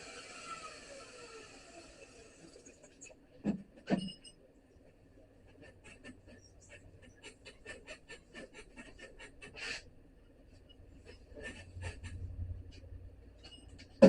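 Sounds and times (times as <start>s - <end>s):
low hum: 10.2s - 14.0s.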